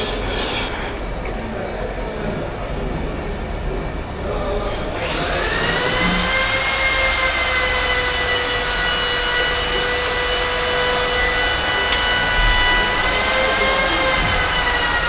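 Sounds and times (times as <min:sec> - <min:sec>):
continuous rushing hiss: 0:00.0 - 0:01.3
machine high whine: 0:00.0 - 0:01.9.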